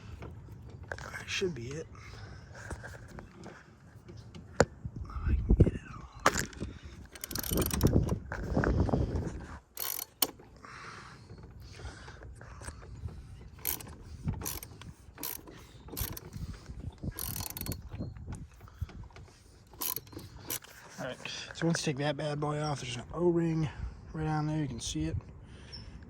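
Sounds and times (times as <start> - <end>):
ratchet clicking: 7.0 - 8.4, 9.7 - 10.5, 13.5 - 18.8, 19.6 - 20.9.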